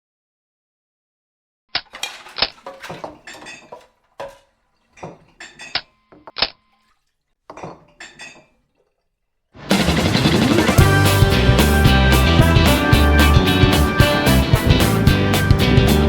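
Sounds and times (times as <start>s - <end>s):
metallic clinks and knocks: 1.9s - 9.0s.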